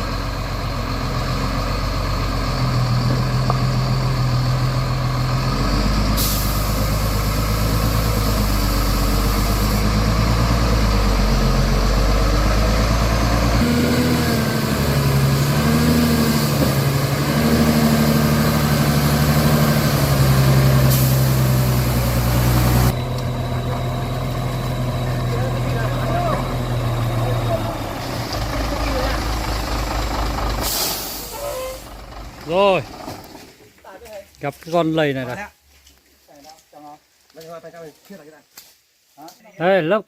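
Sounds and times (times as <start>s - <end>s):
truck diesel engine running: 0.0s - 33.4s
long air hisses: 6.2s - 8.4s, 30.6s - 31.5s.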